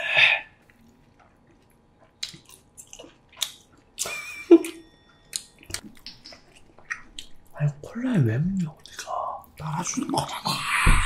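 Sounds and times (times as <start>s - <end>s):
chewing noodles: 0.6s - 4.1s, 5.2s - 7.6s.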